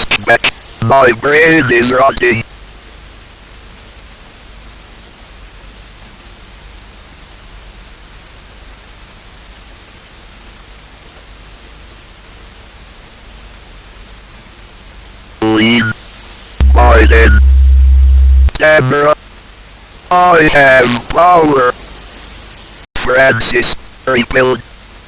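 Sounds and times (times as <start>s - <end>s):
static hiss: 0.0s - 2.4s, 15.4s - 19.2s, 20.1s - 24.6s.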